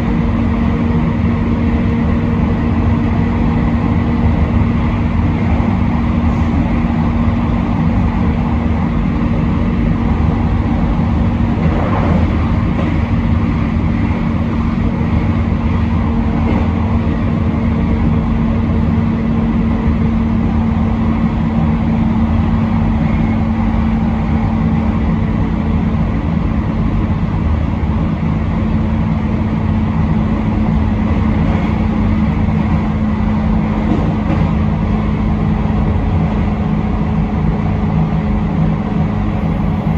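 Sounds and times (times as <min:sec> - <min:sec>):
rush of noise: 0:00.0 - 0:26.1
constant low hum: 0:00.0 - 0:39.9
train wheels rumbling on rail: 0:00.0 - 0:39.9.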